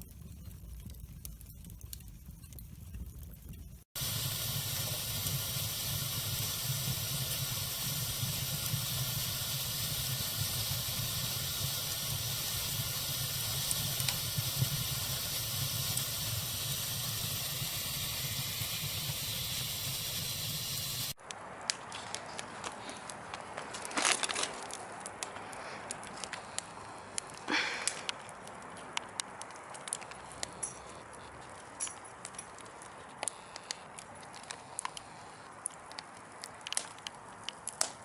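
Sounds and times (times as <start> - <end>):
fireplace fire hissing: 0.0 - 21.2, 25.4 - 30.5
faint fire pops: 0.0 - 30.7, 31.9 - 38.0
sharp wood crackles: 0.0 - 38.0.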